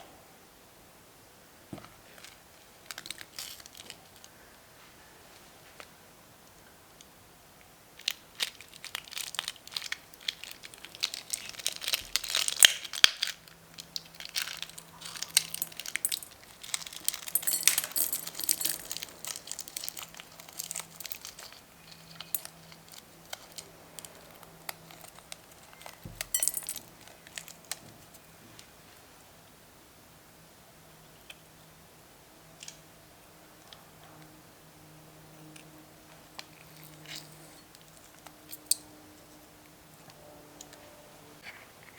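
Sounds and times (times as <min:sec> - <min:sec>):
slime crackling and popping: 0:08.1 - 0:17.3.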